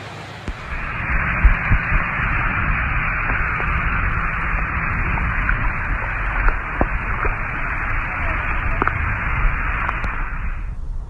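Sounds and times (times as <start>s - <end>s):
radio static hiss: 0.0s - 11.0s
low thumps: 0.4s - 11.0s.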